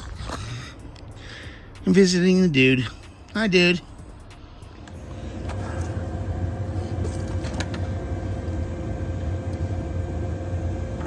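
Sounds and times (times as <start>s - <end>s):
faint steady hum: 2.8s - 11.0s
vehicle engine rumbling: 2.8s - 11.0s.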